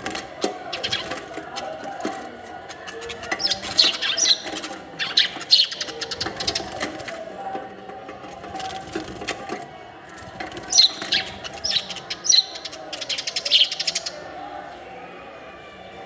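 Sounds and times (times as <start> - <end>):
small birds chirping: 0.0 - 7.4, 8.3 - 14.3
wings fluttering: 0.0 - 7.5, 8.3 - 14.2.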